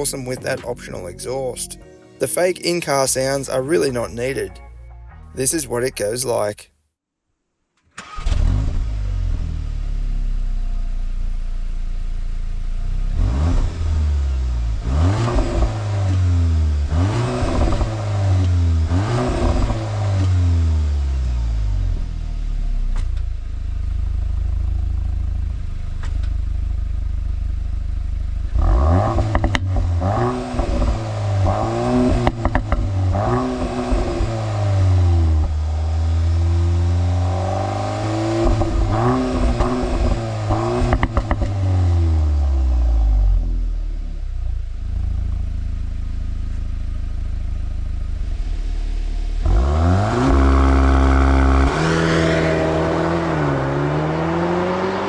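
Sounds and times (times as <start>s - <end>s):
car engine accelerating hard: 8.0s - 23.0s, 23.8s - 43.9s, 46.9s - 55.0s
exhaust cracks: 13.1s - 20.8s, 22.8s - 43.6s, 44.4s - 54.3s.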